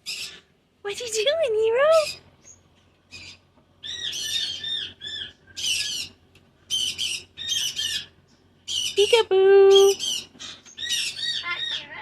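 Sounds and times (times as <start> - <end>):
cockatoo squawking: 3.1 - 12.0.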